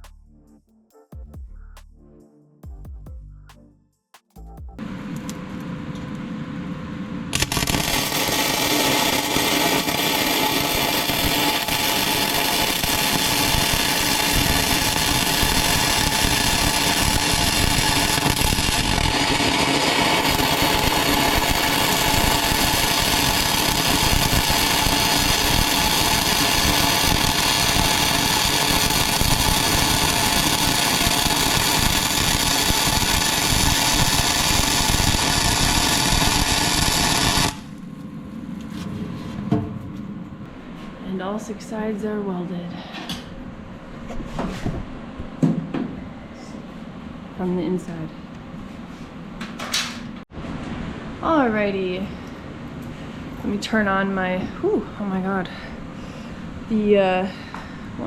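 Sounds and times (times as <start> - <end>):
welder arc crackling: 7.3 - 37.8.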